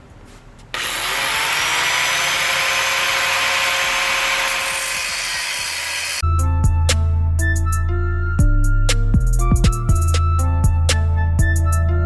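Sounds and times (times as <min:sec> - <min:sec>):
power tool cutting steel pipe: 0:00.8 - 0:06.2.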